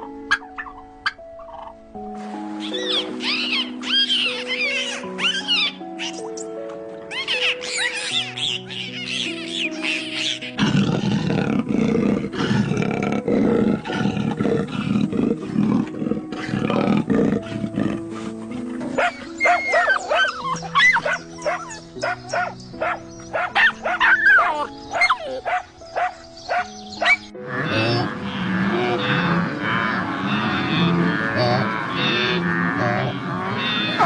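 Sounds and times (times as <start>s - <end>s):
simple background tune: 0.0s - 34.0s
quick high animal calls: 2.6s - 6.3s
lion roaring: 10.6s - 19.1s, 27.5s - 34.0s.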